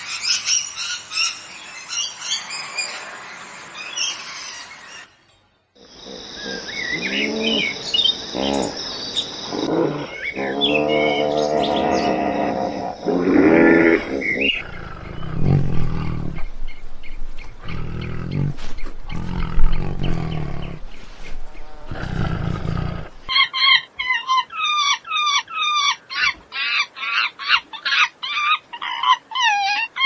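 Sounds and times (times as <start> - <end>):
large animal roaring: 6.0 - 23.3.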